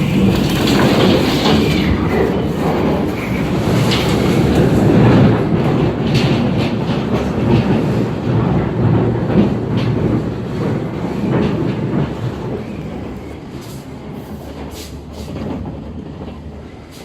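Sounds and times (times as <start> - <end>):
tornado roaring: 0.0 - 13.5.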